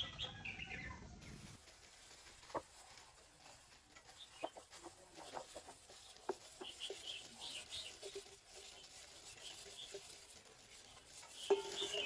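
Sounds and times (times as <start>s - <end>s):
faint high bird chirps: 0.0s - 1.5s, 10.8s - 12.0s.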